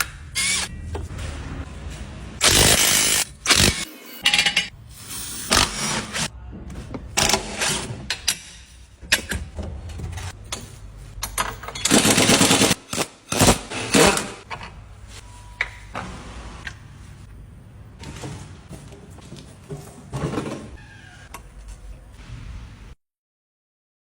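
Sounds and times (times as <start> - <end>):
rapid mechanical rattling and knocks: 9.1 - 14.5.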